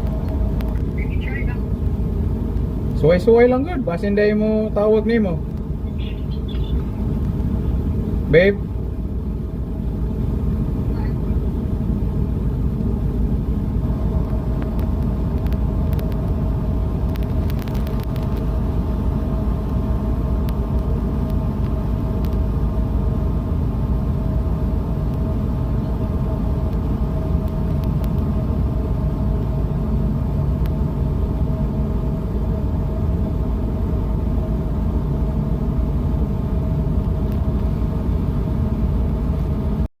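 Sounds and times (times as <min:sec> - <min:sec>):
boat engine rumbling: 0:00.0 - 0:39.9.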